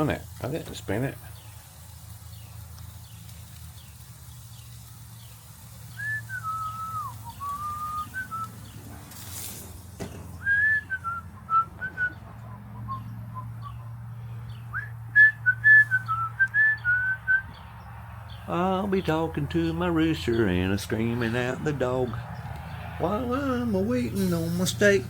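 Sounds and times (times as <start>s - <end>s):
person whistling a tune: 6.0s - 8.5s, 10.4s - 12.2s, 14.7s - 17.5s.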